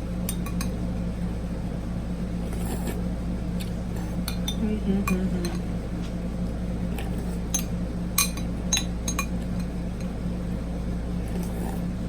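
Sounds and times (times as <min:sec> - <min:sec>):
steady low hum: 0:00.0 - 0:12.0
tableware clinking: 0:07.5 - 0:09.4.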